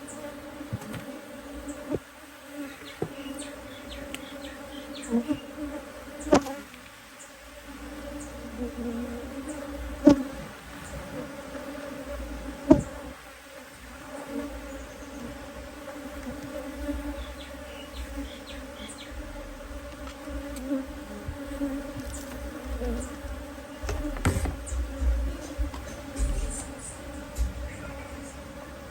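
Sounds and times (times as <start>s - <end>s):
honeybees buzzing: 0.0s - 28.9s
knocks on a hive: 12.7s - 13.0s, 19.0s - 28.0s.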